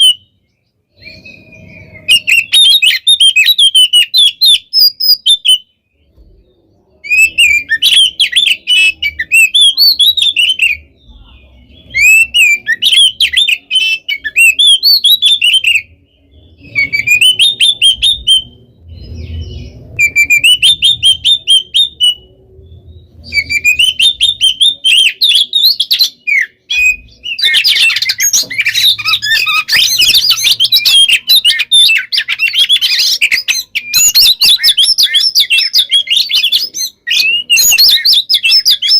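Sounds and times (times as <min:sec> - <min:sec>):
bird singing chirps and trills: 0:00.0 - 0:38.9.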